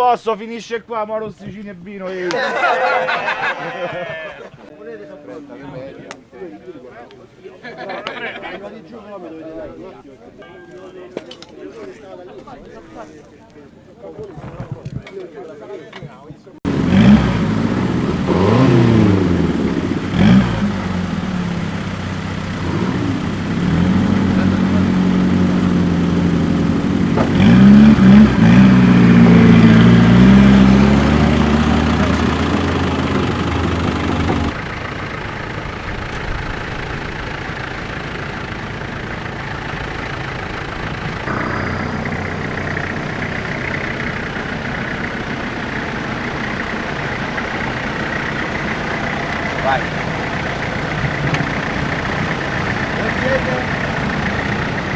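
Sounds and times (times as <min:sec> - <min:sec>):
engine revving: 0:16.7 - 0:54.9
engine running steadily: 0:16.7 - 0:54.9.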